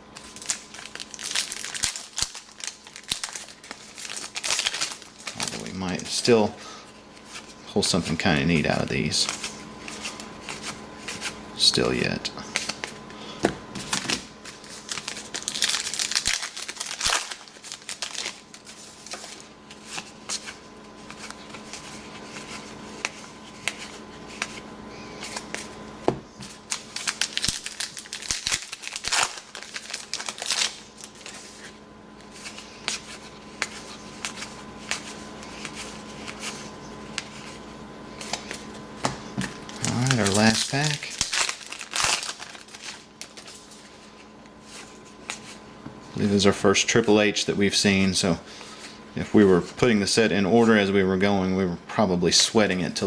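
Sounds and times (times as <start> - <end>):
card pack wrappers crinkling: 0.1 - 6.5, 7.2 - 13.2, 13.8 - 45.6
cards being handled and flipped: 0.2 - 6.5, 7.1 - 48.0.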